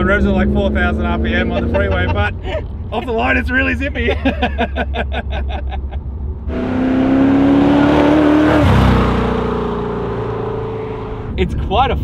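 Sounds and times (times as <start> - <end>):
car engine hum: 0.0 - 12.0
men laughing: 1.2 - 2.6, 3.9 - 6.1.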